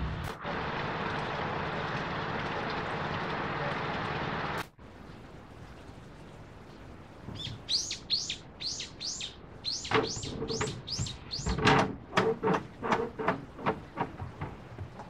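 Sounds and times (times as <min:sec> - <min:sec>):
small bird chirping: 0:07.3 - 0:11.6
light clacking knocks: 0:09.8 - 0:15.0.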